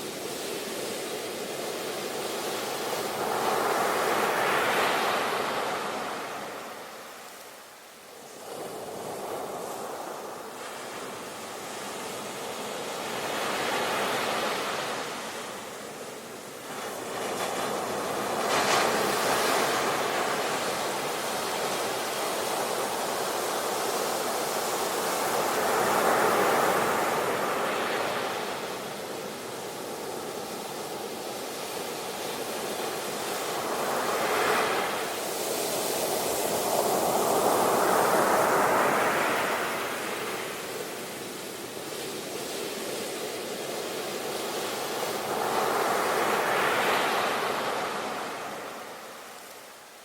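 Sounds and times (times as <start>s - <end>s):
ocean waves breaking on shore: 0.0s - 50.0s.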